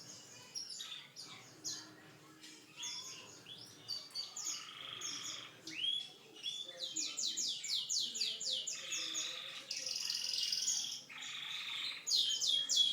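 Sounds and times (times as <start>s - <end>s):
canary singing: 2.7s - 12.9s.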